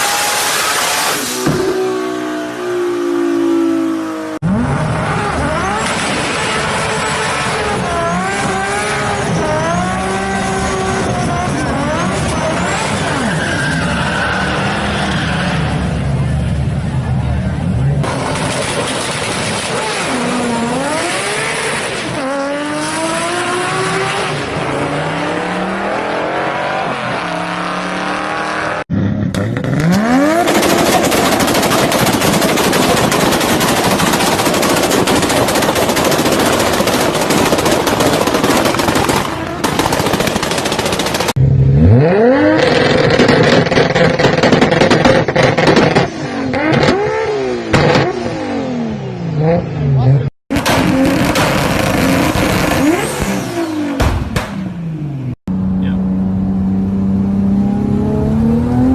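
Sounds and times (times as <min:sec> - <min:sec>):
car engine revving: 0:00.0 - 0:58.9
exhaust crackle: 0:29.2 - 0:41.5, 0:50.5 - 0:54.6.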